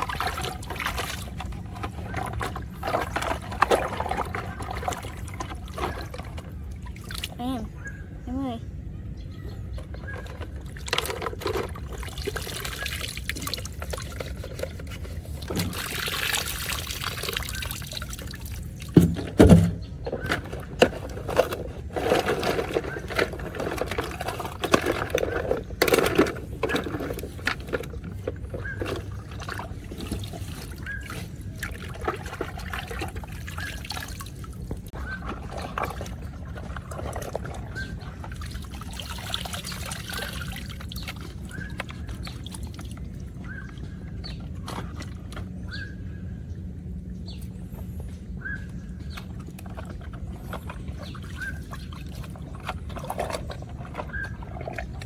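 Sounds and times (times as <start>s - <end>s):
handling clatter and knocks: 0.0s - 6.7s, 9.6s - 16.5s, 18.9s - 45.6s, 47.3s - 55.0s
water pouring and trickling: 0.0s - 7.6s, 9.8s - 19.6s, 20.2s - 45.5s, 49.3s - 55.0s.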